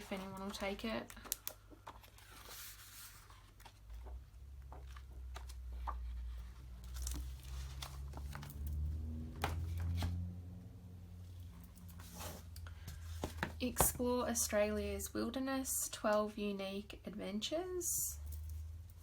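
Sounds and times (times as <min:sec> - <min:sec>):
book pages rustling: 0:00.0 - 0:10.3, 0:11.8 - 0:13.6.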